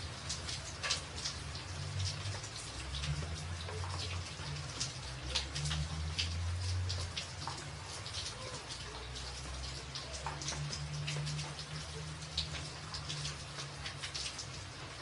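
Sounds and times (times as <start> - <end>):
rain on a tin roof: 0.0 - 15.0.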